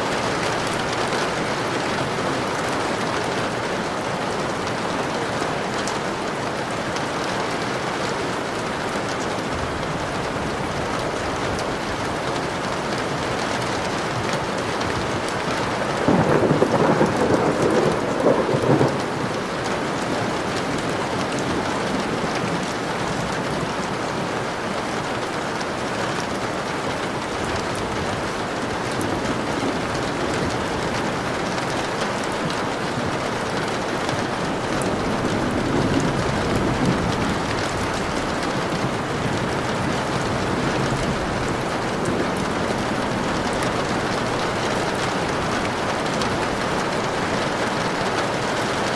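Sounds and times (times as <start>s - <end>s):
steady rain falling: 0.0s - 48.9s
thunder rumbling: 14.8s - 23.3s, 27.5s - 48.9s.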